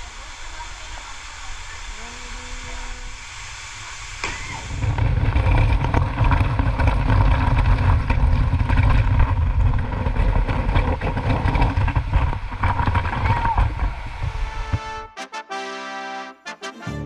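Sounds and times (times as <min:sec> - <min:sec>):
wind noise from moving vehicle: 0:04.3 - 0:14.9
vehicle engine rumble: 0:04.4 - 0:14.8.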